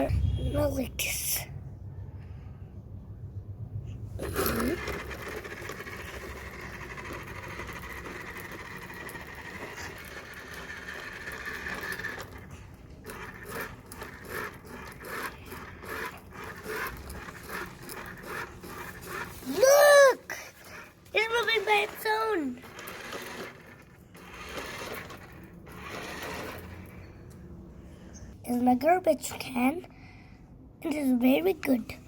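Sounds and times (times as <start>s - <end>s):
toy truck mechanical whirring: 4.2s - 27.3s.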